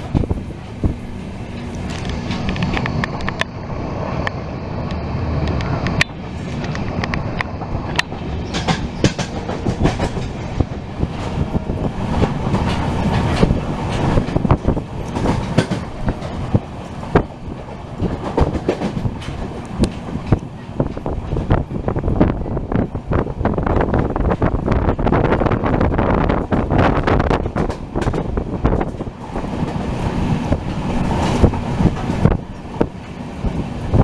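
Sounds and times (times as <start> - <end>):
train wheels clattering on rails: 0.0 - 34.0
sharp clicks and knocks: 4.2 - 11.4, 12.1 - 17.3, 18.0 - 21.5, 27.4 - 29.1.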